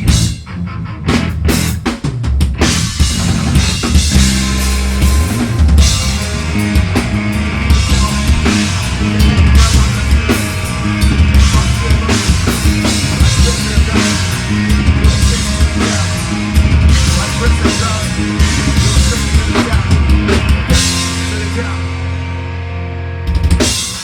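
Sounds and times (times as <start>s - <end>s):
pounding drum kit: 0.0s - 22.4s, 23.2s - 24.0s
distorted guitar and bass: 0.0s - 24.0s
held guitar chord ringing: 4.2s - 19.5s.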